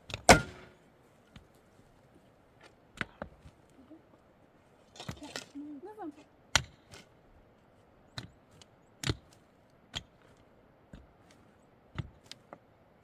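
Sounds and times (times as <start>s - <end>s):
sharp knocks: 0.3s - 0.7s.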